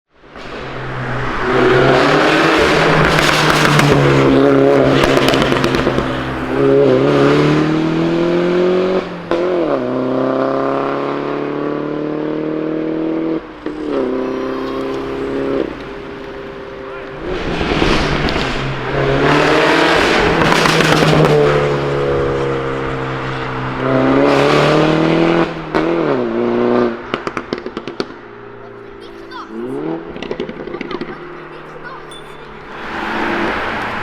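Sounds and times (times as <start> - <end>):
exhaust crackling: 0.4 - 11.4, 12.5 - 34.0
car engine revving: 0.4 - 34.0.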